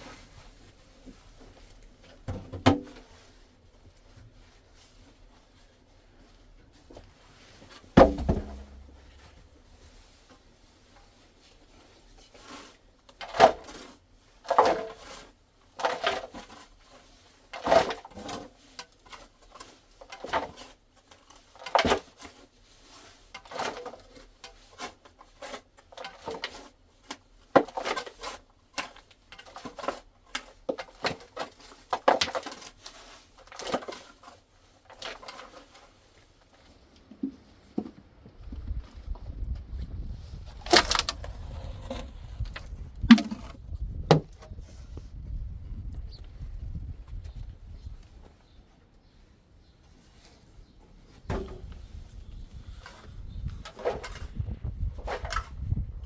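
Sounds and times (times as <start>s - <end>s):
objects knocking and clattering: 8.0s - 9.5s, 40.6s - 44.5s.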